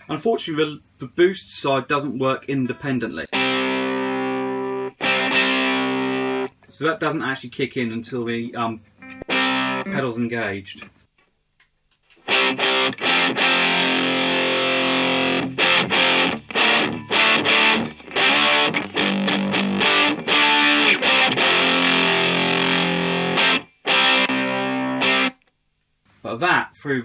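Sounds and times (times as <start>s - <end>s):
overdriven electric guitar chords: 3.3s - 6.5s, 9.0s - 10.1s, 12.2s - 25.4s.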